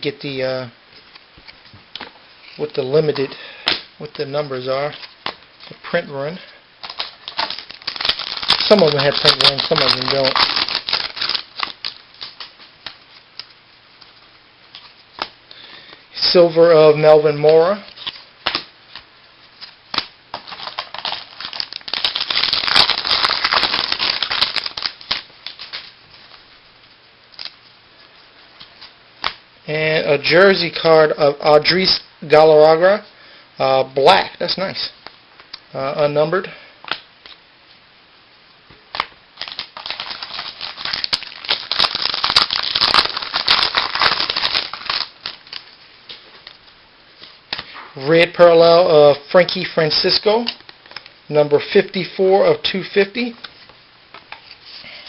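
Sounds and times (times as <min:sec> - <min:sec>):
cards rustling and crackling: 0:01.1 - 0:15.4, 0:17.3 - 0:26.4, 0:38.9 - 0:46.6
cards rustling and sliding: 0:06.8 - 0:15.4.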